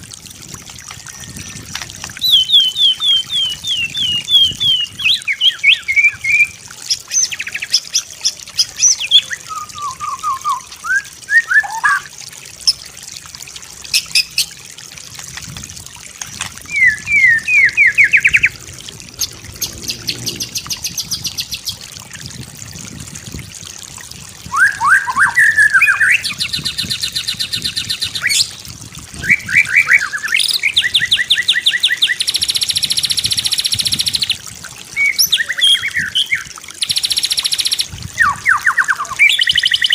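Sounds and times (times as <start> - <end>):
songbird singing: 1.0 - 12.1, 16.6 - 21.8, 24.5 - 28.6, 29.2 - 39.9.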